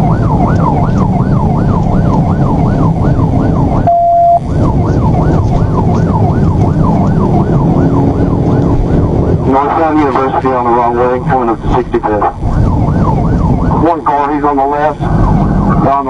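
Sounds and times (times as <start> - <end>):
engine and road rumble: 0.0 - 16.0
police siren yelping: 0.0 - 16.0
steady beep: 3.8 - 4.5.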